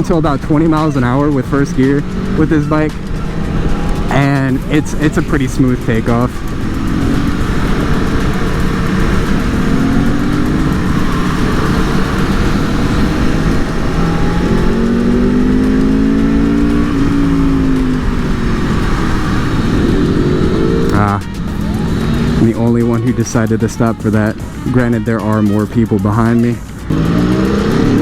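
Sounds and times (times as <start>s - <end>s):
motorcycle engine revving: 0.0s - 28.0s
wind and road noise: 0.0s - 28.0s.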